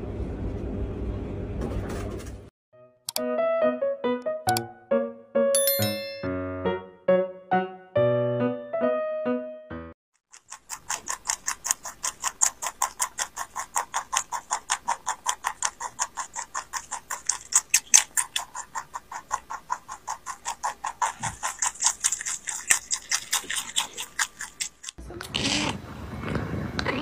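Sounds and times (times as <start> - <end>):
rabbit chewing greens: 10.3 - 26.9.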